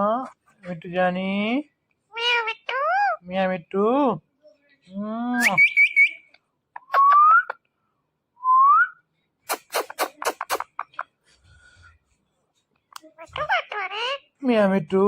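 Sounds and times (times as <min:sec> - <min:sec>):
parrot calling and whistling: 0:05.4 - 0:07.6.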